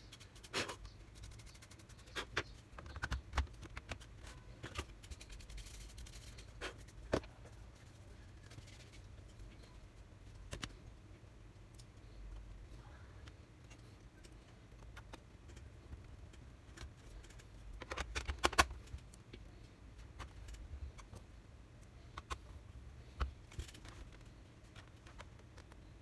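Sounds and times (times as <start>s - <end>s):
steady low hum: 0.0s - 26.0s
clicks and taps of laptop parts: 2.2s - 4.9s.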